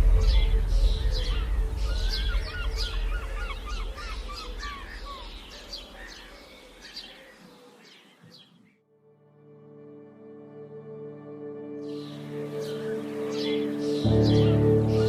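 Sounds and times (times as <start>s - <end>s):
low rumble: 0.0s - 5.6s
birds calling and chirping: 0.0s - 8.8s, 11.8s - 15.0s.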